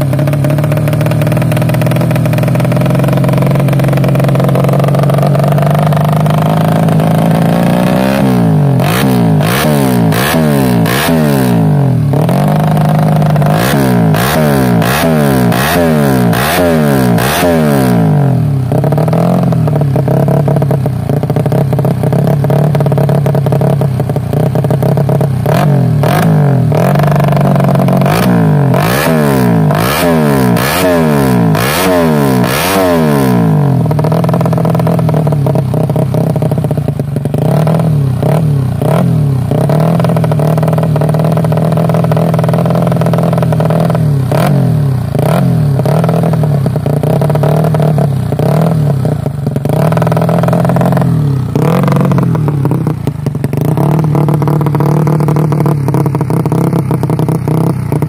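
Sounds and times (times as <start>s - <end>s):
motorcycle engine revving and idling: 0.0s - 58.0s.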